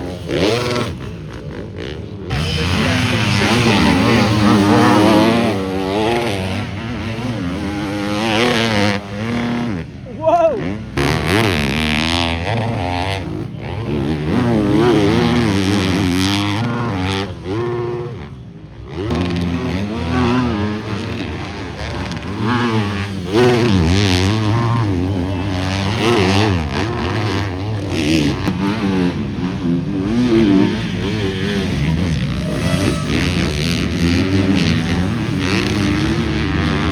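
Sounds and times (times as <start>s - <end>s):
motocross bikes revving: 0.0s - 36.9s.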